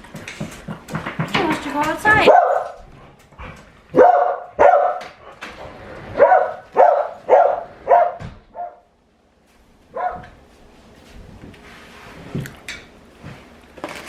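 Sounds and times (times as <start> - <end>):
dog barking: 2.1 - 2.9, 3.9 - 5.2, 6.1 - 8.9, 9.9 - 10.4.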